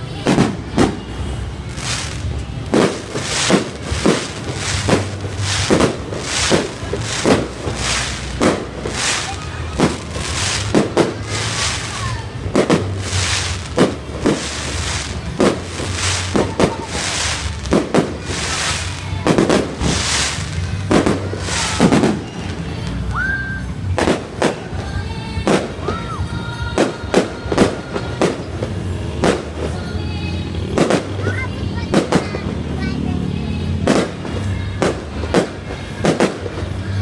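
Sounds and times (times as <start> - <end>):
fireworks crackling: 0.0 - 37.0
music: 0.0 - 37.0
fireworks bangs: 0.2 - 23.0, 23.8 - 30.0, 30.6 - 32.8, 33.7 - 37.0.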